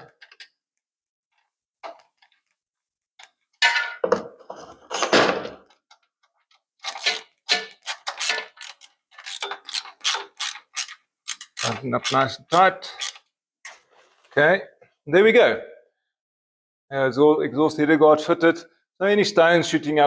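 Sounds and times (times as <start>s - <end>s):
metal parts clanking: 6.8s - 13.2s
clamp tightening clicks: 8.1s - 13.2s.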